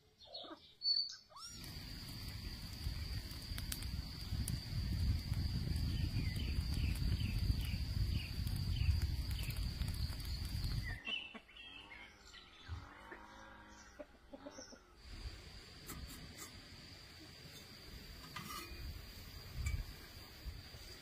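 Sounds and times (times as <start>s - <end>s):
short bird chirps: 0.2s - 1.8s.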